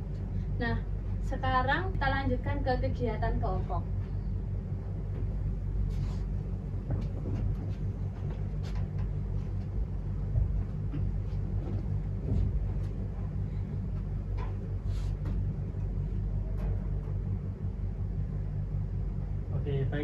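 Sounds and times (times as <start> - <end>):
low rumble and hum: 0.0 - 20.0.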